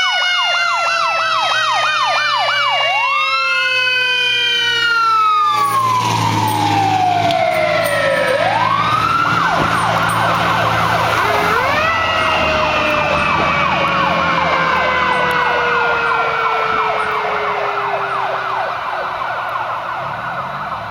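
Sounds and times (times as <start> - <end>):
fire engine siren wail: 0.0 - 20.9
siren yelp: 0.0 - 20.9
low engine rumble: 5.3 - 20.9.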